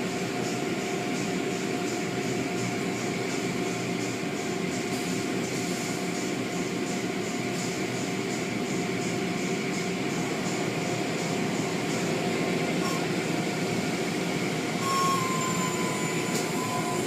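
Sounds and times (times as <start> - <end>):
car wash machinery running: 0.0 - 17.0.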